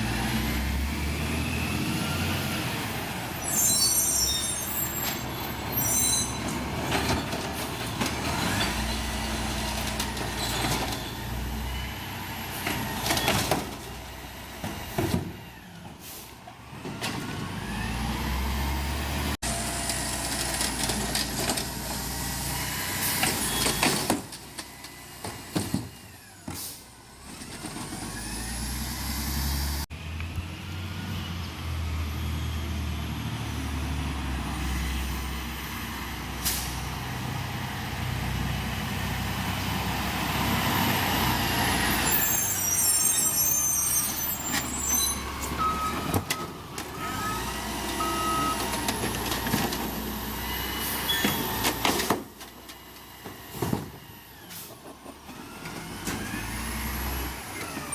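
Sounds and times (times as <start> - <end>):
truck engine rumble: 0.0 - 57.9
air brake hiss: 26.5 - 26.9, 36.4 - 36.8
back-up beeps: 48.0 - 48.6.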